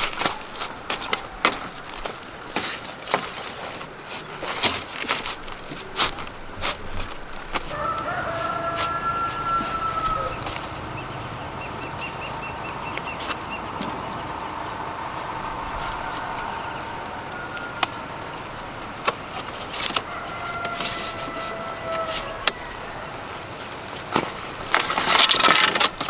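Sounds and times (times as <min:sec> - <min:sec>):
insects chirping: 0:00.0 - 0:26.0
rooster crowing: 0:07.6 - 0:12.6, 0:14.2 - 0:18.8, 0:19.7 - 0:23.6.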